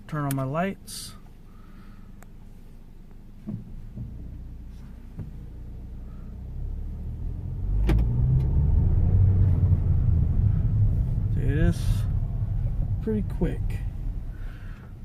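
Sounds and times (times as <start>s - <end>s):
car engine pulling away: 3.8s - 15.0s.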